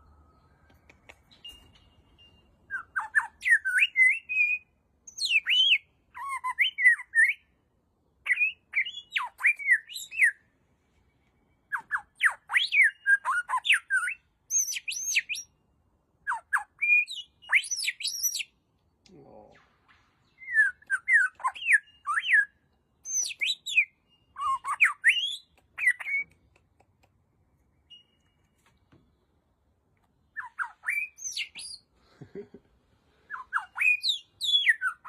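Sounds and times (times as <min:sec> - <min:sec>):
bird whistling and chirping: 0:00.3 - 0:07.4, 0:08.3 - 0:10.4, 0:11.7 - 0:15.5, 0:16.3 - 0:18.5, 0:20.3 - 0:26.3, 0:30.3 - 0:31.9, 0:33.2 - 0:35.0.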